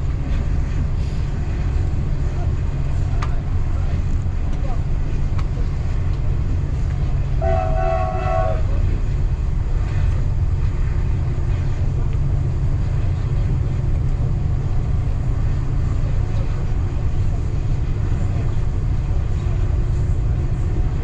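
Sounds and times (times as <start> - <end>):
train rumbling: 0.0 - 21.0
train horn blast: 7.4 - 8.8.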